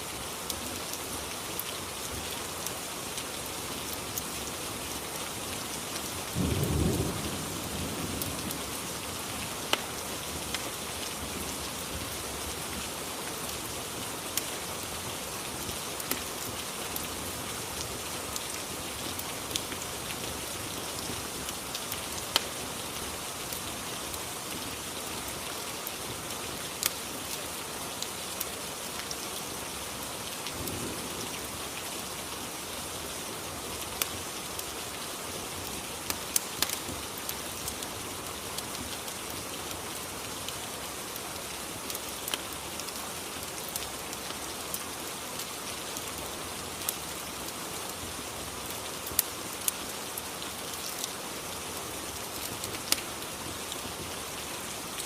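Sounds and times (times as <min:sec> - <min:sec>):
steady rain: 0:00.0 - 0:55.0
low rumble of thunder: 0:06.4 - 0:08.8.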